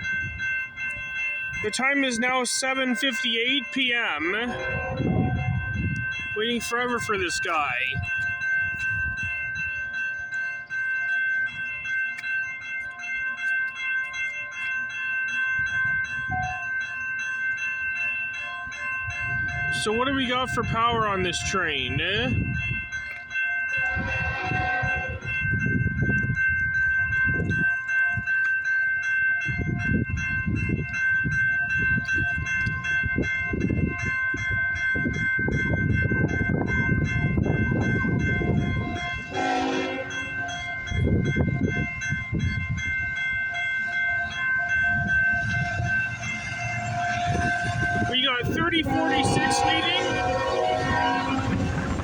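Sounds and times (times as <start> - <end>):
freight train rumbling past: 0.0 - 10.0, 18.6 - 23.0, 23.8 - 27.7, 29.6 - 52.0
train horn blasts: 4.4 - 5.8, 23.8 - 25.3, 38.5 - 40.9, 43.8 - 52.0.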